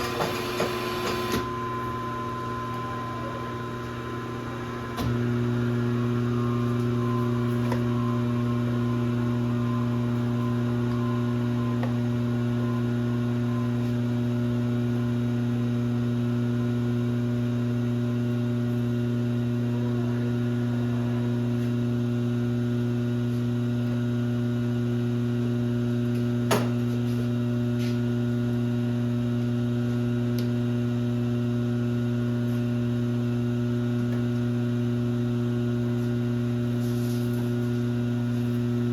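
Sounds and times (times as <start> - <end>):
machine electrical hum: 0.0 - 38.9
faint falling whine: 1.0 - 25.0.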